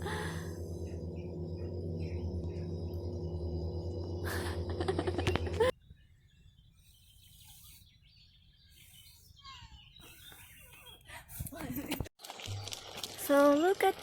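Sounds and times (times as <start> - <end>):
loud droning hum: 0.0 - 5.7
small birds chirping: 0.1 - 11.7.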